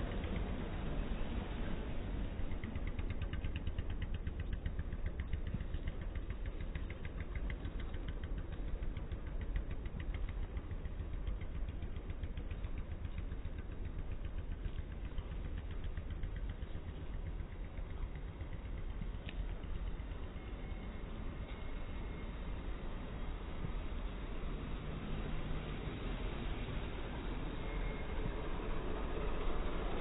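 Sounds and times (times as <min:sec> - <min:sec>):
engine rumbling: 0:00.0 - 0:30.0
fast engine ticking: 0:00.0 - 0:30.0.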